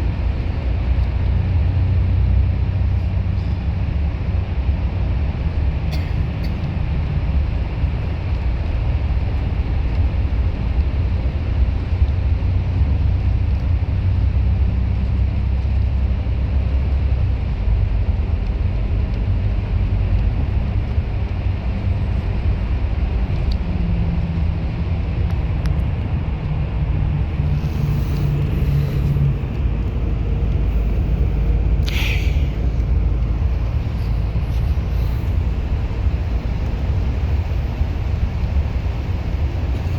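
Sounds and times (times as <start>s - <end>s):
bus engine and road rumble: 0.0s - 39.9s
brief air hiss: 31.8s - 32.6s.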